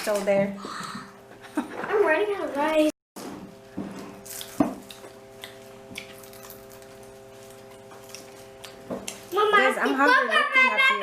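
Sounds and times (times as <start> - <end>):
wet clicks of eating by hand: 4.4 - 6.9.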